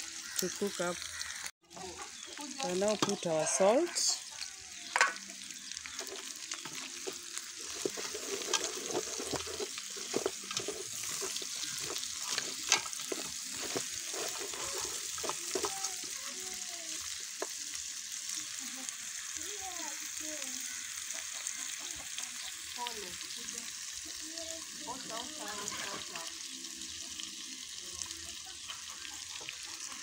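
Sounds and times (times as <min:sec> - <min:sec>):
meat and onions sizzling in oil: 0:00.0 - 0:30.0
wooden spoon scraping a pot: 0:06.0 - 0:16.2.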